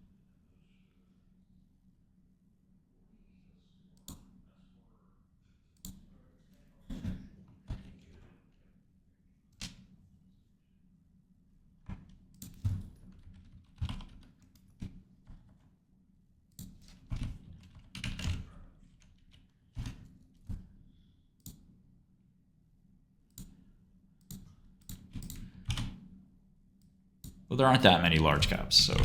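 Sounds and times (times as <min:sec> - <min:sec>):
typing on a computer keyboard: 0:12.4 - 0:14.8, 0:16.6 - 0:20.0, 0:24.3 - 0:26.0.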